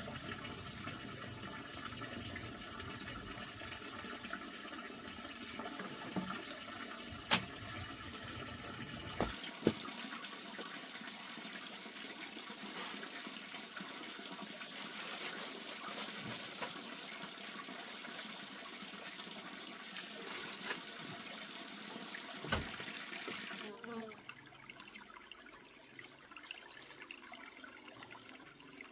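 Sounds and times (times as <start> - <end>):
water running: 0.0 - 25.1.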